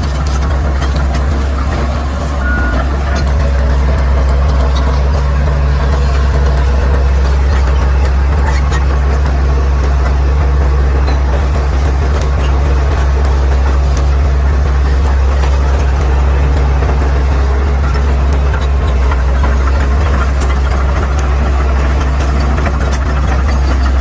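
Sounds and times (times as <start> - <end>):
bulldozer diesel engine running: 0.0 - 24.0
short high beep: 2.4 - 2.8.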